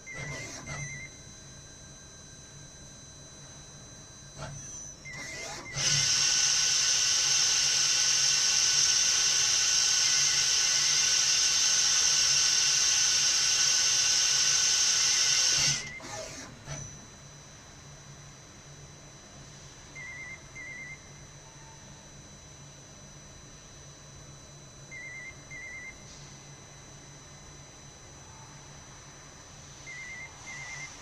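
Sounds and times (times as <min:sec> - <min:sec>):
lathe high-pitched whine: 0:00.0 - 0:02.6, 0:03.2 - 0:17.2, 0:28.2 - 0:31.0.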